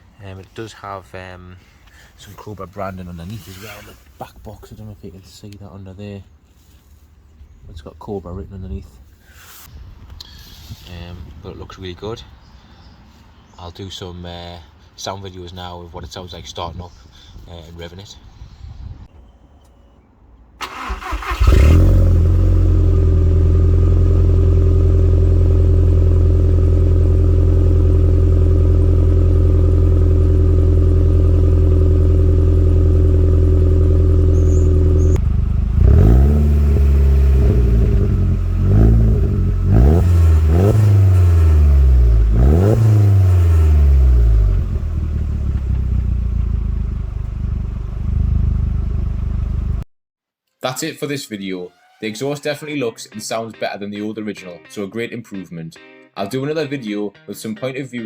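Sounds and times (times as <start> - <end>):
car engine revving: 20.6 - 49.8
car engine starting and idling: 20.6 - 49.8.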